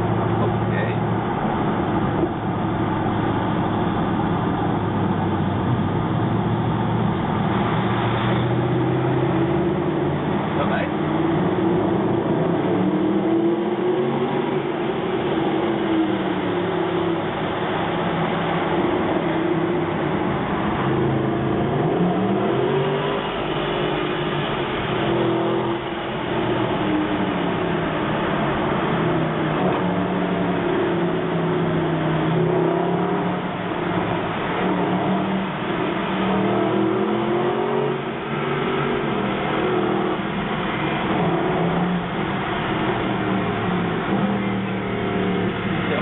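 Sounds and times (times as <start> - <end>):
car engine accelerating in tunnel: 0.0 - 46.0.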